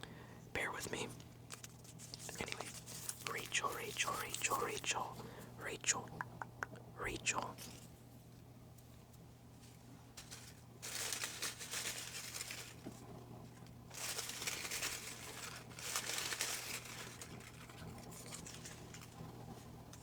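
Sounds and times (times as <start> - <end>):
paper slips rustling: 10.2 - 13.1, 13.9 - 19.2.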